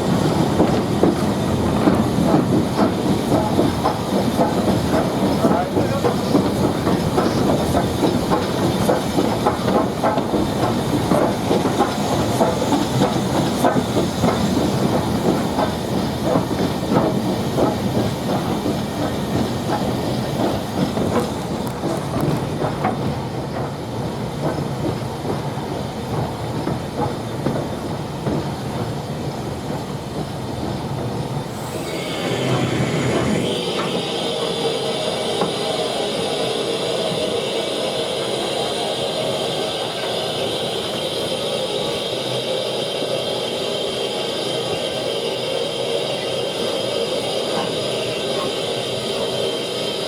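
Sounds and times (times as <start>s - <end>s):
wheels clicking over rails: 0.0s - 34.0s
steam train rumbling: 0.0s - 50.0s
hiss of steam: 31.4s - 50.0s.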